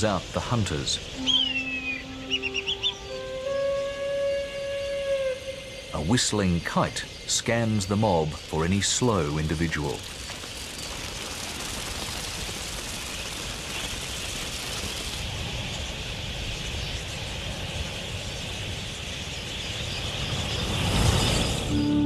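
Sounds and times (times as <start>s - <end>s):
rushing of many bird wings: 8.4s - 21.7s.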